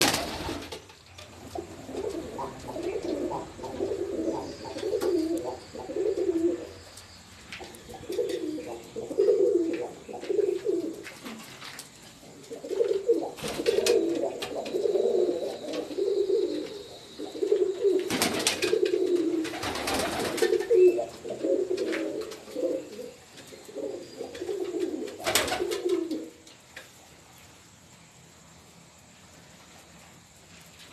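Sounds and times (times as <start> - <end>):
pigeons cooing: 1.3 - 7.0, 7.6 - 26.4.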